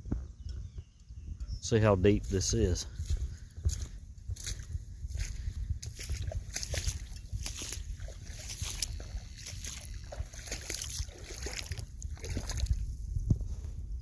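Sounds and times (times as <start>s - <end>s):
steady low rumble: 0.0s - 14.0s
water sloshing and splashing: 3.6s - 13.0s.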